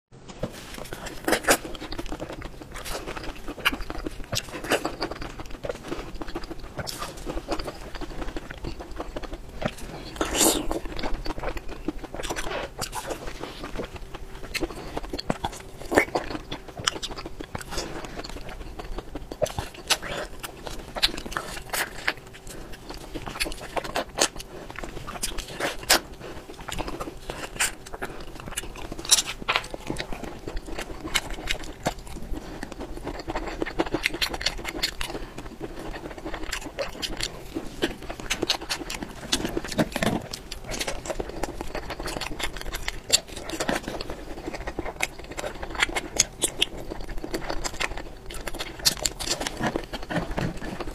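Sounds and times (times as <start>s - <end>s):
person chewing food: 0.2s - 50.9s.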